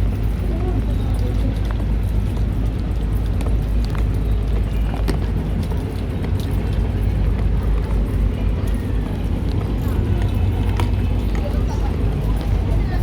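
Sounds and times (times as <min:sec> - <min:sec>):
low rumble of traffic: 0:00.0 - 0:13.0.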